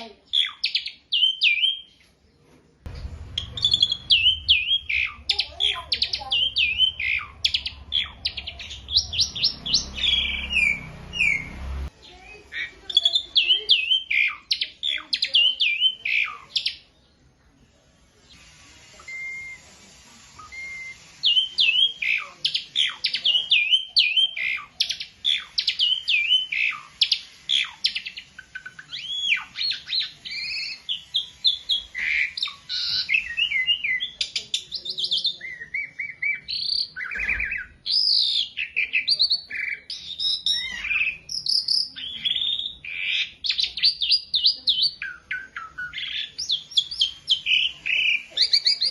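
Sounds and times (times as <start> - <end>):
starling singing whistles and chirps: 0.0 - 2.0, 3.3 - 16.9, 18.5 - 19.7, 20.3 - 48.9
short steady whistles: 20.4 - 21.9.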